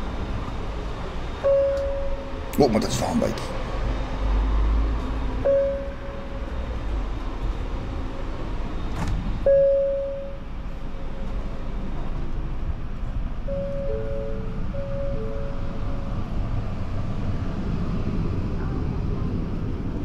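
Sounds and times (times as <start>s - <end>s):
electric train rumbling: 0.0s - 20.0s
short ringing tones: 1.4s - 2.6s, 5.5s - 6.6s, 9.5s - 10.5s, 13.5s - 16.4s.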